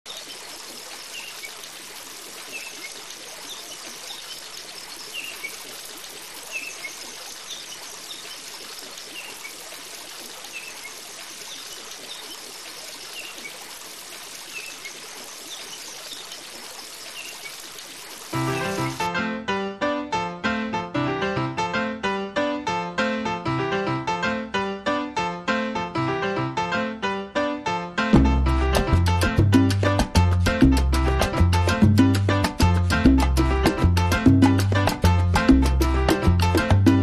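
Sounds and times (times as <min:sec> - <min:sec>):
rushing water: 0:00.0 - 0:19.1
piano music: 0:18.4 - 0:37.0.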